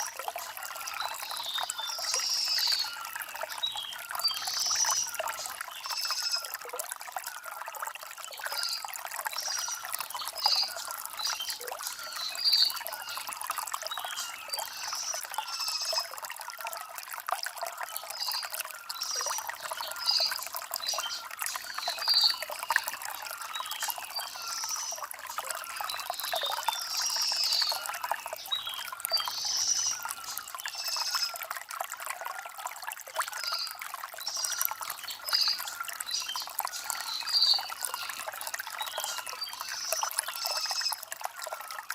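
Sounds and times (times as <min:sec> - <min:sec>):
stream trickling over stones: 0:00.0 - 0:41.9
small birds chirping: 0:08.3 - 0:16.1, 0:18.1 - 0:31.4, 0:33.2 - 0:41.0.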